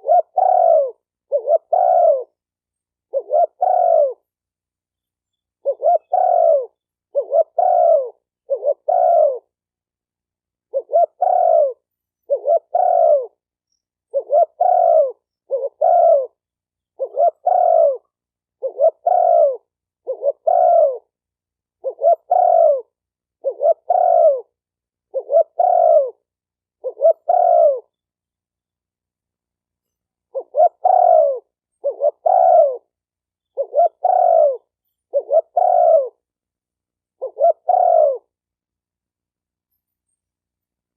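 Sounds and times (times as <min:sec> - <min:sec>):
dove cooing: 0:00.0 - 0:02.4, 0:03.0 - 0:04.3, 0:05.6 - 0:09.6, 0:10.6 - 0:13.4, 0:14.1 - 0:21.2, 0:21.8 - 0:27.9, 0:30.3 - 0:36.2, 0:37.2 - 0:38.4.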